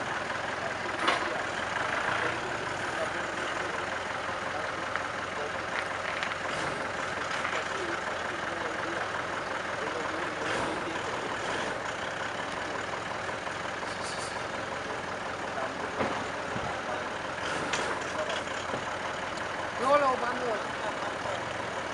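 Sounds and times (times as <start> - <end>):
car engine idling: 0.0 - 21.9.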